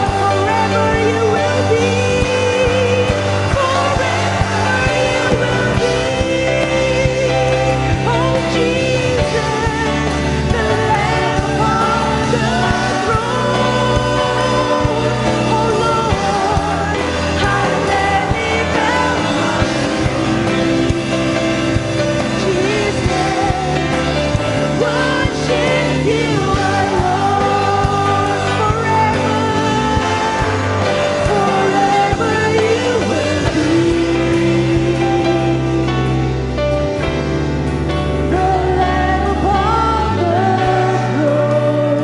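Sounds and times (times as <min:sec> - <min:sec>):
person singing: 0:00.0 - 0:37.3, 0:38.1 - 0:42.0
band playing worship music: 0:00.0 - 0:42.0.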